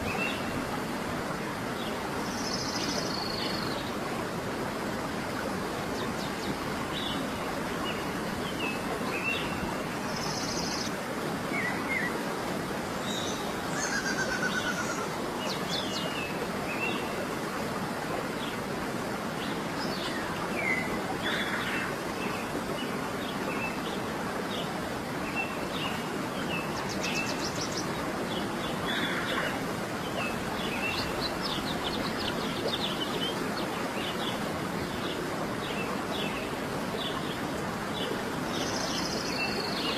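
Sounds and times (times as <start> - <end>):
flowing water: 0.0 - 39.9
birds chirping and trilling: 13.1 - 15.1.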